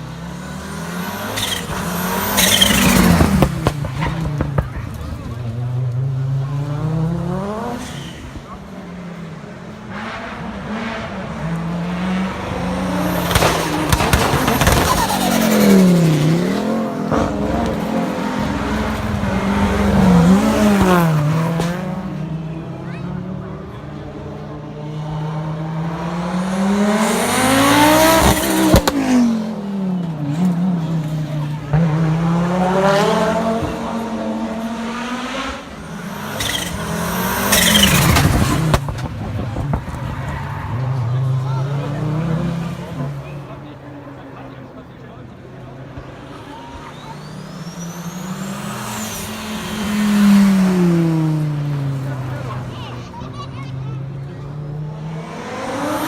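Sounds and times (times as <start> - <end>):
rally car engine accelerating: 0.0 - 56.0
sharp engine bangs: 12.0 - 22.0, 31.7 - 42.7.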